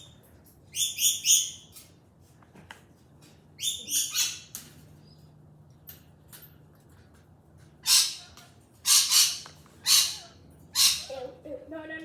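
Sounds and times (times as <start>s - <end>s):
pet bird harsh chirps: 3.6s - 4.5s, 7.8s - 11.3s.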